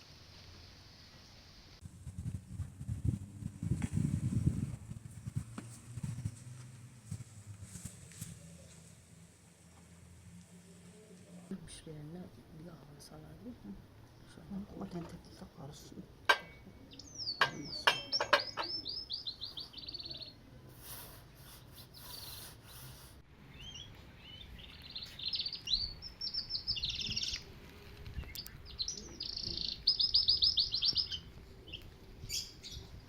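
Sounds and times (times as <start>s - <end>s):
small songbirds chirping: 16.3s - 27.6s, 28.2s - 33.0s.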